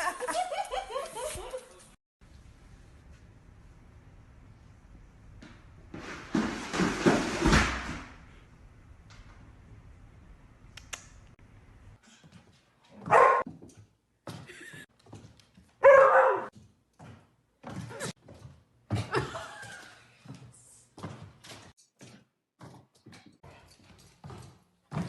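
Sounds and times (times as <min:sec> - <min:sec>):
dog barking: 0:13.0 - 0:13.4, 0:15.8 - 0:16.5.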